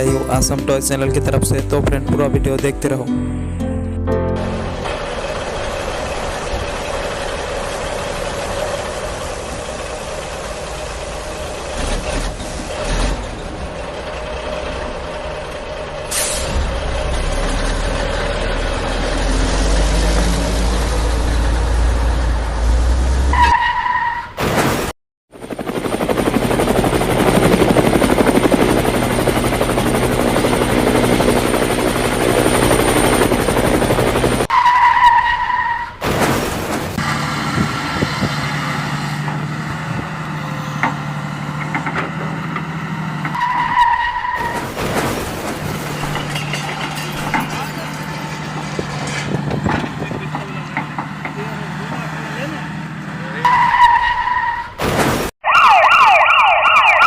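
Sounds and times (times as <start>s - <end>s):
vehicle engine noise: 4.2s - 23.4s, 36.0s - 53.8s.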